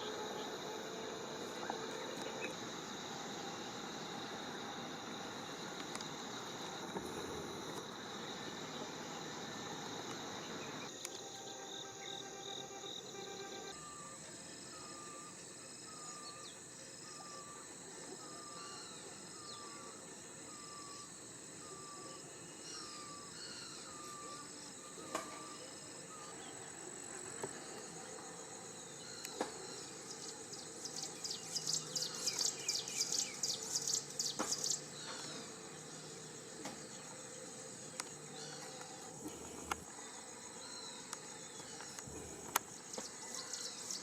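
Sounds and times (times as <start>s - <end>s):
high cricket-like drone: 0.0s - 44.0s
rapid high insect chattering: 29.0s - 44.0s.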